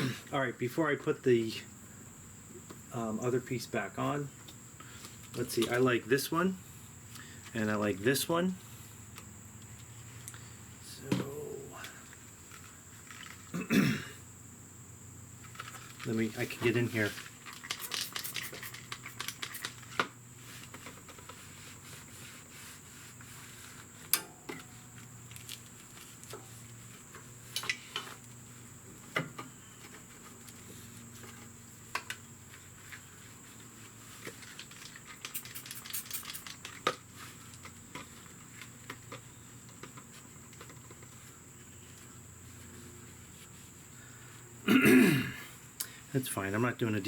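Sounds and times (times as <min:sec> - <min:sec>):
faint steady hum: 0:36.4 - 0:47.0.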